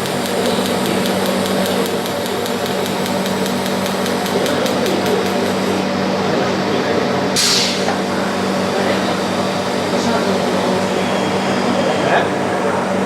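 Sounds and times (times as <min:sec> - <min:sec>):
indistinct voices: 0:00.0 - 0:13.0
machinery hum: 0:00.0 - 0:13.0
short hiss: 0:07.4 - 0:07.9.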